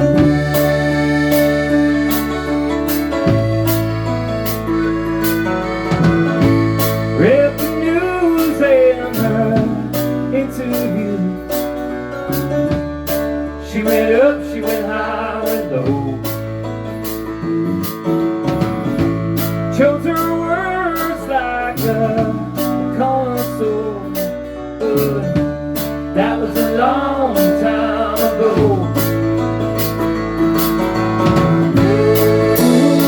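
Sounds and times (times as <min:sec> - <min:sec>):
steady drum beat: 0:00.0 - 0:08.6, 0:13.9 - 0:20.4, 0:21.8 - 0:23.6, 0:25.0 - 0:33.0
bass: 0:00.0 - 0:33.0
gliding melodic lead line: 0:00.0 - 0:33.0
guitars: 0:00.0 - 0:33.0
live band playing: 0:00.0 - 0:33.0.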